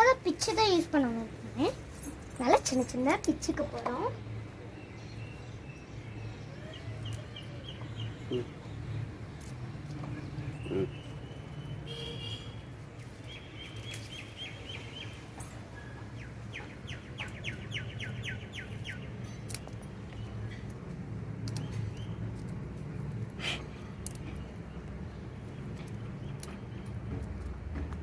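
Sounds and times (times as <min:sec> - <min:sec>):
bird chirping: 0:01.6 - 0:22.5
leaves crackling: 0:13.0 - 0:14.9.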